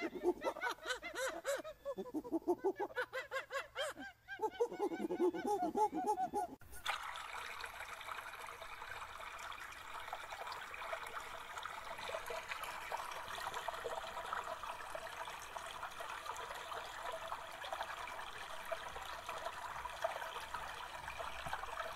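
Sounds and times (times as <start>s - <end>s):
flowing water: 0.0s - 1.4s, 6.6s - 21.9s.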